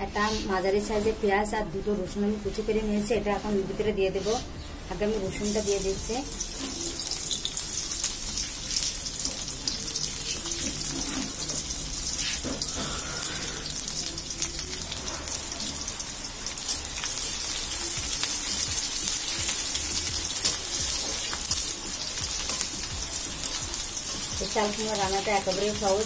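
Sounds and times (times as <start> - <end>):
garlic sizzling in hot oil: 0.1 - 26.0.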